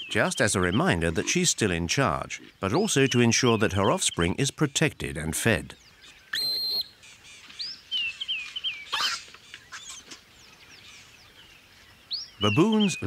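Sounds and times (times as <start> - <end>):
bird high whistle: 6.3 - 6.9
short high bird chirps: 6.3 - 7.0, 7.6 - 10.1.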